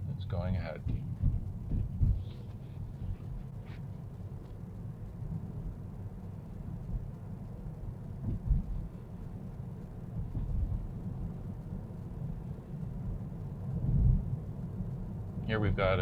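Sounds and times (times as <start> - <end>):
road and tyre rumble: 0.0 - 16.0
low thump: 0.8 - 2.3, 8.2 - 8.8, 10.2 - 10.8.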